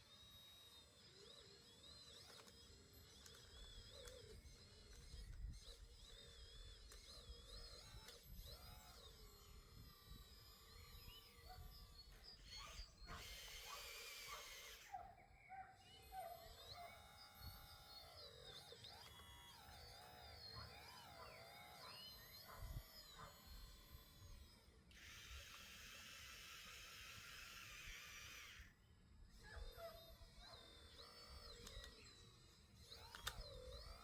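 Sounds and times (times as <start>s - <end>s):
faint birdsong: 10.7s - 23.7s.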